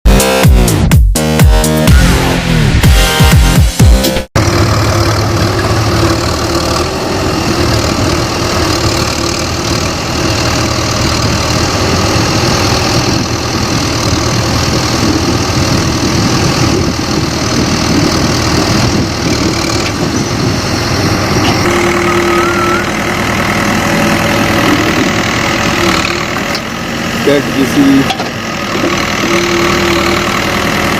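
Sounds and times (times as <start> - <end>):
diesel engine running: 0.1 - 30.9
high steady tone: 21.4 - 23.0.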